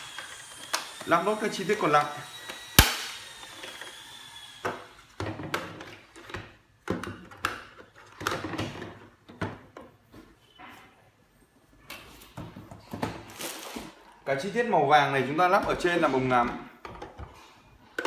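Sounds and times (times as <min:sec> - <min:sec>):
plastic parts clicking and knocking: 0:04.6 - 0:10.0, 0:16.4 - 0:18.0.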